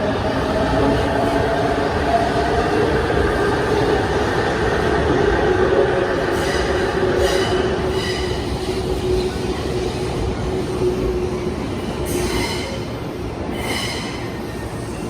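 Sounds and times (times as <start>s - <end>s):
electric train rumble and hum: 0.0s - 15.0s
train wheels squealing: 6.3s - 10.1s, 11.3s - 15.0s.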